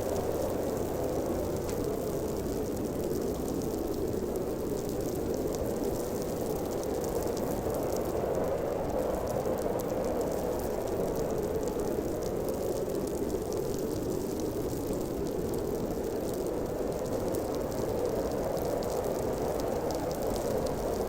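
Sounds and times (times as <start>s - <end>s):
faint light ticks: 1.5s - 2.6s.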